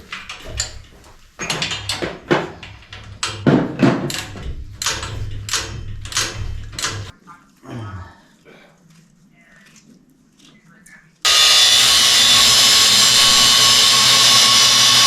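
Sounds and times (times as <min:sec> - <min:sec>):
rapid knocks and clanks: 0:00.0 - 0:07.1, 0:11.3 - 0:15.0.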